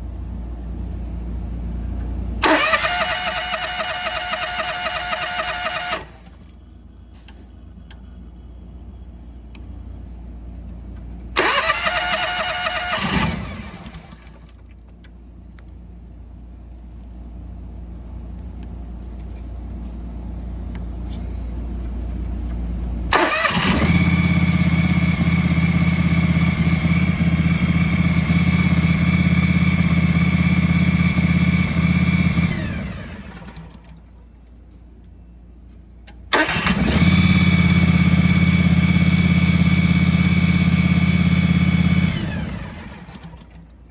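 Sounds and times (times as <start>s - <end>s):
engine starting and running: 2.4s - 8.6s, 11.3s - 14.9s, 23.1s - 34.4s, 36.0s - 43.9s.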